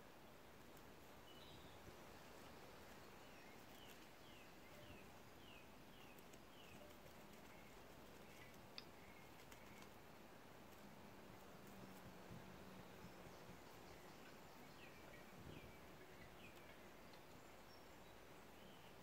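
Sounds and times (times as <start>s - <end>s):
small bird calling: 2.9s - 10.0s.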